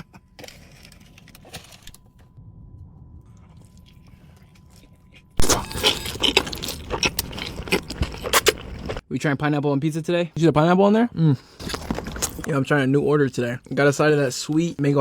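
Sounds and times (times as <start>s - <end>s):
crunchy chewing and biting: 4.6s - 9.0s, 11.6s - 12.6s.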